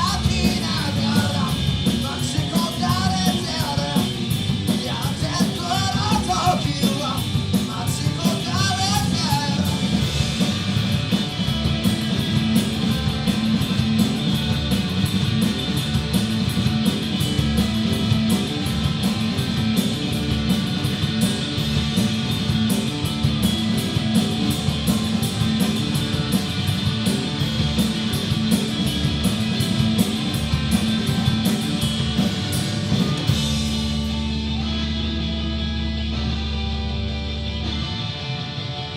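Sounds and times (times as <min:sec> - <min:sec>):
person singing: 0:00.0 - 0:04.2
rock band playing live: 0:00.0 - 0:38.9.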